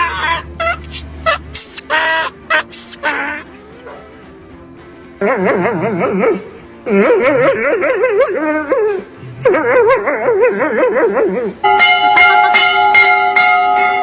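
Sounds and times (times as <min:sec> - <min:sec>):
high wavering wail: 0:00.0 - 0:04.4
bell ringing: 0:11.6 - 0:14.0.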